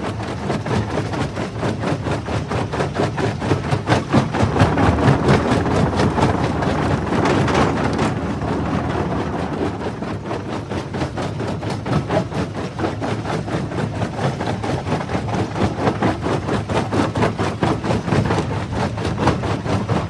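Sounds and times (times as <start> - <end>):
jaw crusher grinding stone: 4.2 - 10.2.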